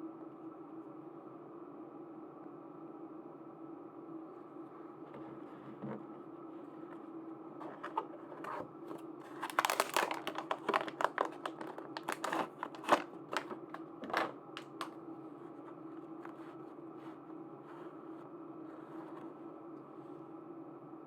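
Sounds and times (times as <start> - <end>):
steady low hum: 0.0 - 21.0
plastic packaging crinkling: 7.6 - 15.0.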